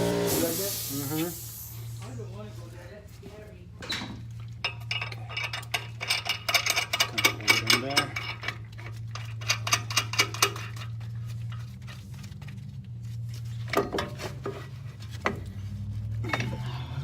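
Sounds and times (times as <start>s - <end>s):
metal tools clinking and rattling: 3.8s - 11.7s, 16.2s - 17.0s.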